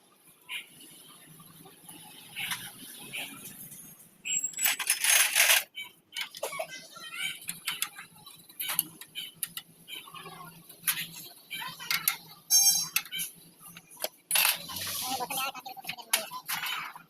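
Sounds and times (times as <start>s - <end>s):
metal tools clinking: 4.3s - 6.5s, 11.9s - 13.3s.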